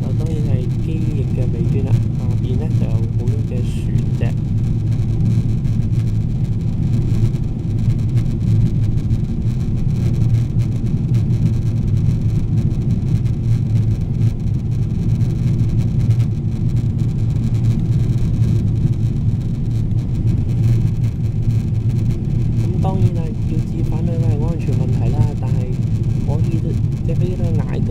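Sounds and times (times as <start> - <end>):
aircraft cabin engine rumble: 0.0 - 27.9.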